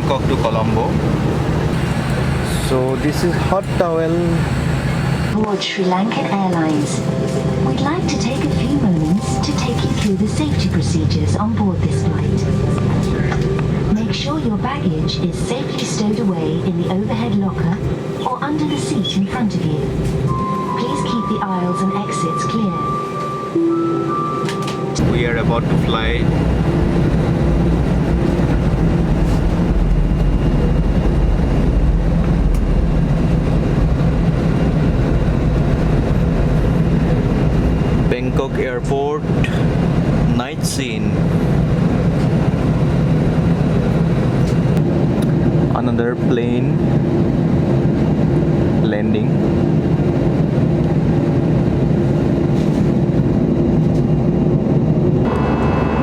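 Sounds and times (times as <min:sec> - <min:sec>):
jet engines rumbling in cabin: 0:00.0 - 0:56.0
high steady tones: 0:04.3 - 0:32.2.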